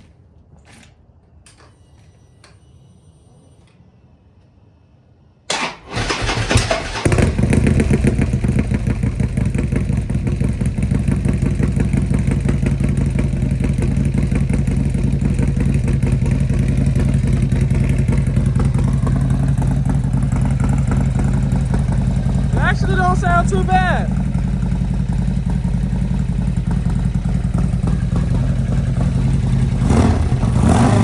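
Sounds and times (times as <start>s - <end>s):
motorcycle engine cranking: 5.5s - 22.6s
motorcycle engine idling: 5.5s - 31.0s.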